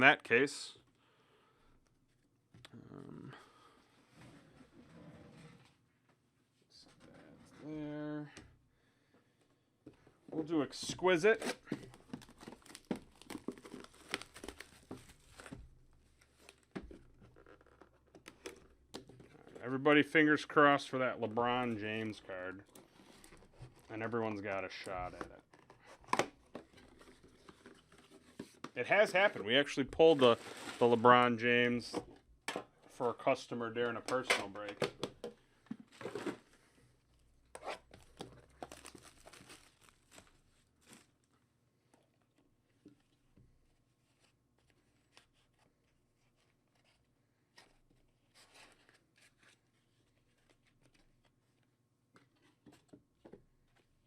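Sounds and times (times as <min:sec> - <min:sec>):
packaging crinkling and rustling: 0:11.4 - 0:19.6, 0:37.9 - 0:41.2.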